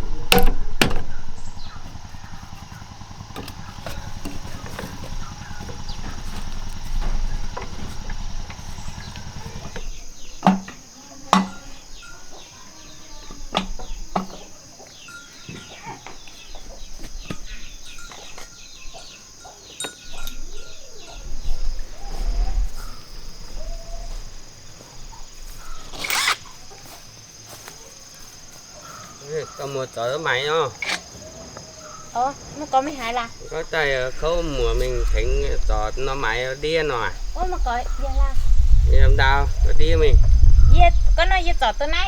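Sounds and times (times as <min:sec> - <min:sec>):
small engine running: 0:00.0 - 0:10.4, 0:22.3 - 0:27.6, 0:30.2 - 0:39.3
bird calls: 0:00.0 - 0:42.0
high insect chirr: 0:00.0 - 0:42.0
sharp knocks: 0:00.3 - 0:10.8.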